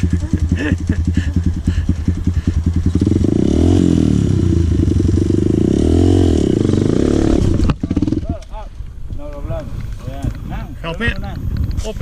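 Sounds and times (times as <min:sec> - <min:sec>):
dirt bike engine revving: 0:00.0 - 0:08.5.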